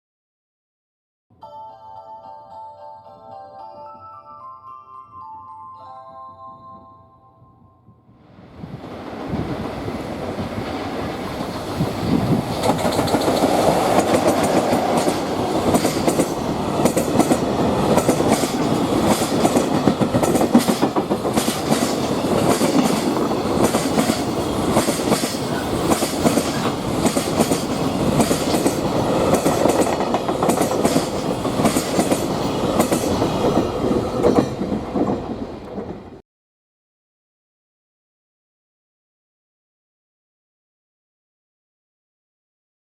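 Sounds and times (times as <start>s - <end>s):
freight train passing: 8.1s - 36.2s
wheels clacking over rail joints: 10.3s - 36.2s.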